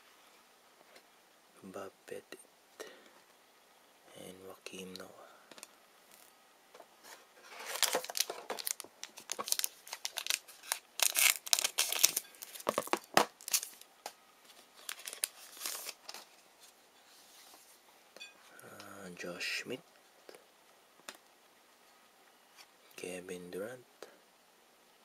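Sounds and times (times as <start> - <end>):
foil wrapper tearing and crinkling: 7.5 - 13.9, 14.8 - 16.2.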